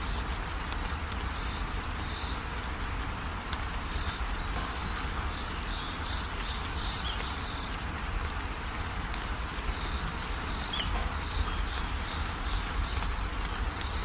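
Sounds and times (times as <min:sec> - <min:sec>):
steady rain: 0:00.0 - 0:14.0
bird chirping: 0:03.2 - 0:14.0.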